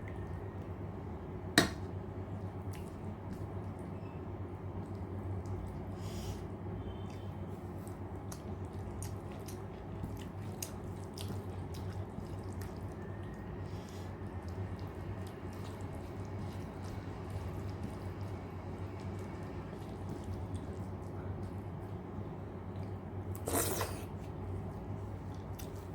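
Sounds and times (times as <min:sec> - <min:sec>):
wet chewing and mouth smacks: 0:02.3 - 0:03.9, 0:04.8 - 0:05.9, 0:06.9 - 0:22.0, 0:22.7 - 0:24.4, 0:25.2 - 0:25.9.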